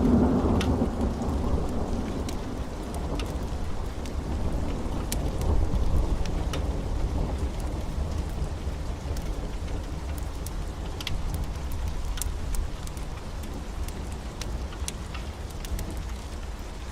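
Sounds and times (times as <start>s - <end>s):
low thunder rumble: 0.0s - 16.0s
heavy rain: 0.0s - 16.9s.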